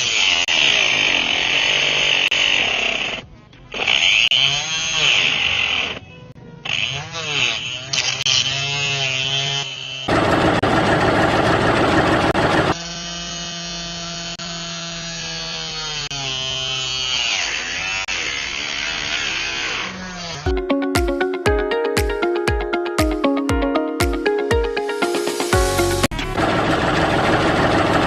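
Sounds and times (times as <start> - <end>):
small electric motors whining: 0.0 - 10.2, 12.6 - 20.5.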